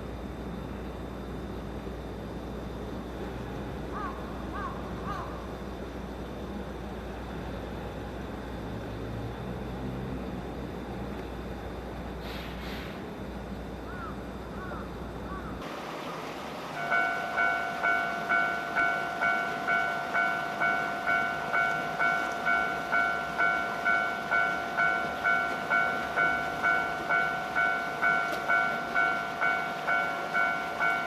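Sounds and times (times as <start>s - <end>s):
low steady hum: 0.0s - 31.0s
level crossing warning bell: 16.6s - 31.0s.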